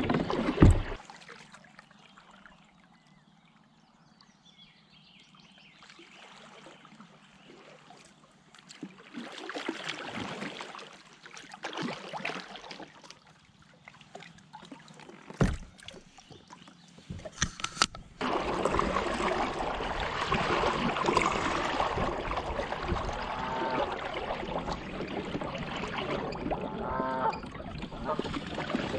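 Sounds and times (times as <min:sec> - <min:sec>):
kayak paddle splashing: 0:00.0 - 0:01.8, 0:05.8 - 0:28.9
rush of water: 0:17.1 - 0:28.9.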